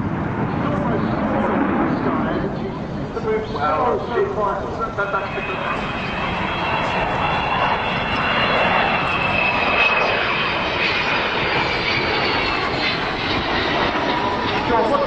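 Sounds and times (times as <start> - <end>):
jet engines rushing with whine: 0.0 - 15.0.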